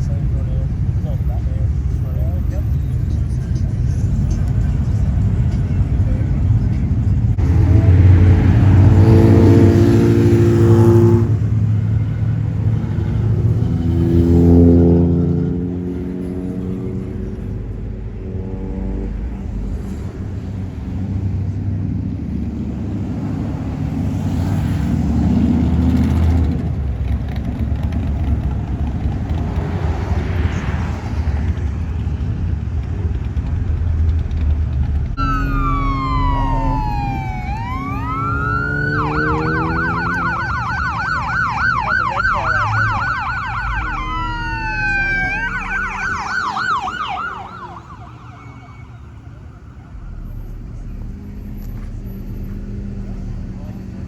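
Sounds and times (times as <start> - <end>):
car engines rumbling: 0.0 - 54.0
emergency vehicle siren: 7.3 - 17.4, 35.2 - 54.0.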